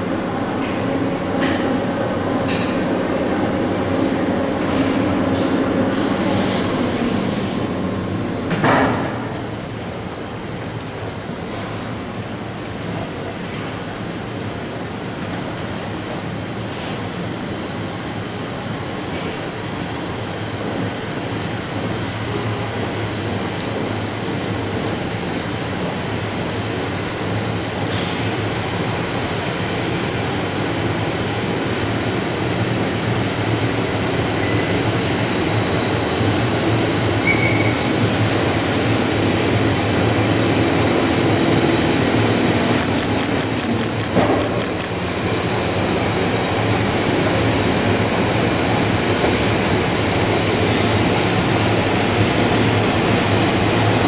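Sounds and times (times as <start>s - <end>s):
freight train rumbling past: 0.0s - 11.5s, 12.1s - 54.0s
rail clicks: 40.2s - 50.4s
thin high squeal: 42.0s - 50.5s.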